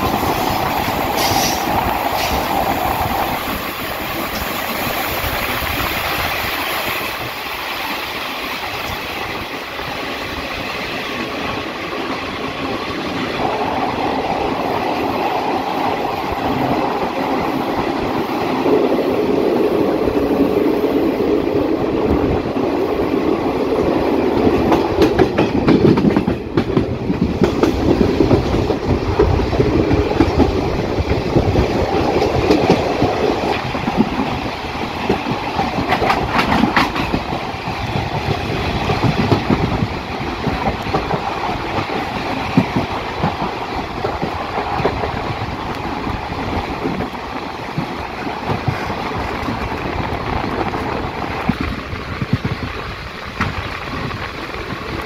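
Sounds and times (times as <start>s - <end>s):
train wheels rumbling on track: 0.0s - 55.0s
wheels clacking over rail joints: 22.4s - 55.0s.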